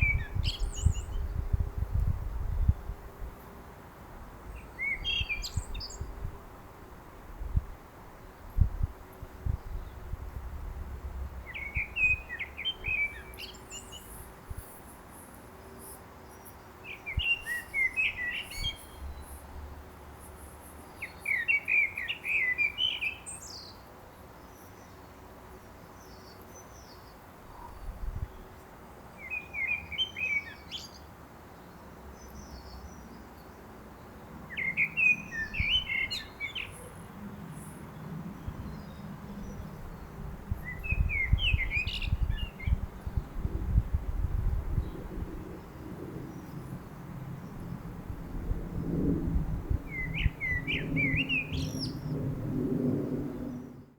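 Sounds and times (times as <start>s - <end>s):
blackbird singing: 0.0s - 1.3s, 4.6s - 6.1s, 11.5s - 14.1s, 16.8s - 19.4s, 21.0s - 23.8s, 29.2s - 31.0s, 34.5s - 36.9s, 38.7s - 42.8s, 49.9s - 52.1s.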